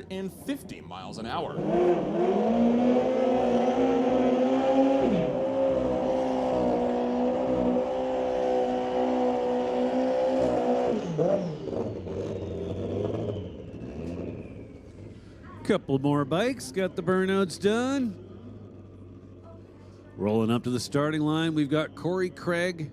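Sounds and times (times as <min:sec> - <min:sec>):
engine idling rumble: 0:00.0 - 0:01.7, 0:11.5 - 0:22.9
motorcycle engines revving: 0:00.0 - 0:22.9.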